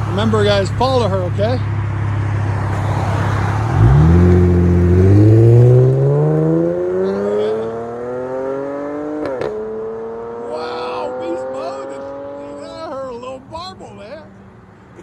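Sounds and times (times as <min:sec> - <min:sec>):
car engine accelerating: 0:02.1 - 0:12.9.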